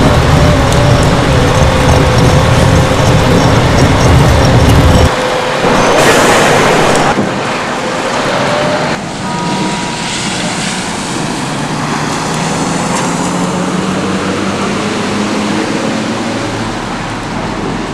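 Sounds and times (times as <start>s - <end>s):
truck diesel engine running: 0.0s - 17.8s
continuous noise: 0.0s - 17.9s.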